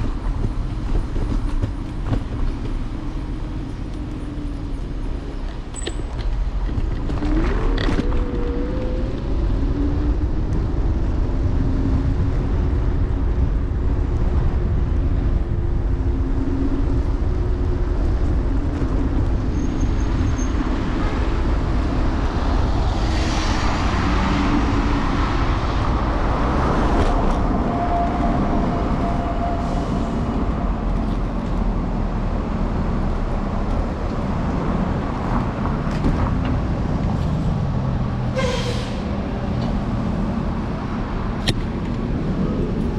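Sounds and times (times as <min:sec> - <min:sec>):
passing vehicles: 0:00.0 - 0:42.9
street traffic rumble: 0:00.0 - 0:42.9.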